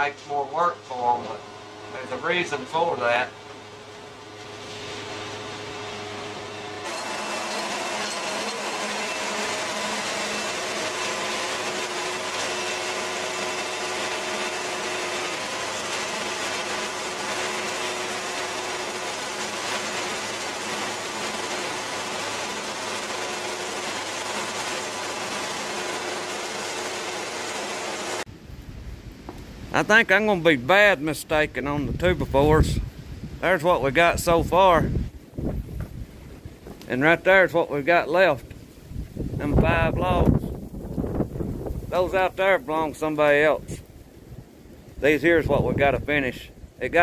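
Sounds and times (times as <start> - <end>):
band saw cutting log: 0.0 - 28.3
engine hum: 0.0 - 29.8.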